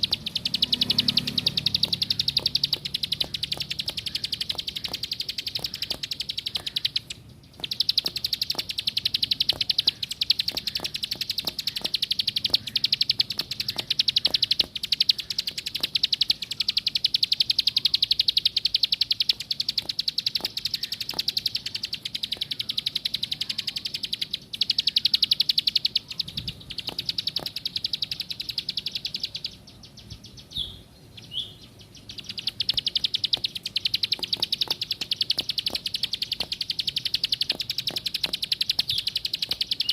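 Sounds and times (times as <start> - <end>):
bird short chirps: 0.0 - 39.9
bird singing fast trill: 0.0 - 39.9.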